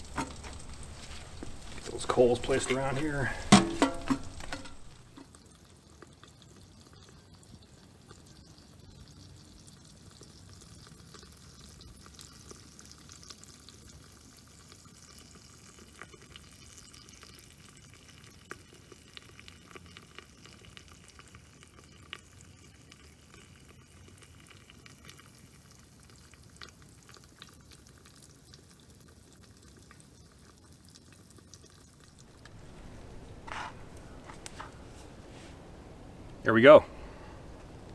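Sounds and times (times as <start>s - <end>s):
food sizzling over coals: 0.0s - 5.2s, 32.1s - 37.9s
small pops: 0.0s - 5.2s, 32.3s - 37.9s.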